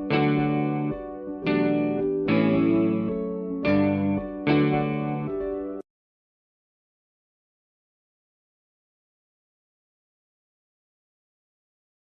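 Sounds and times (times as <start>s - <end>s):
guitar chords: 0.0s - 5.8s.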